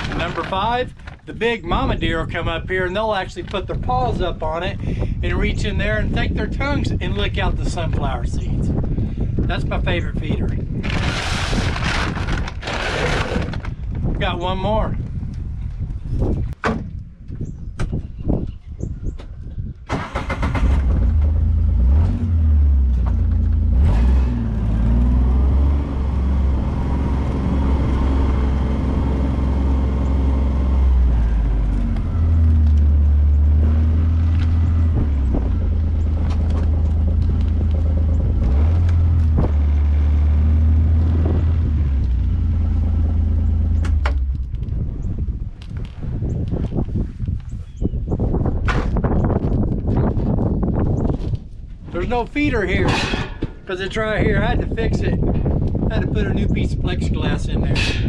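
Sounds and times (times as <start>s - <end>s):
vehicle engine humming: 20.6s - 46.8s.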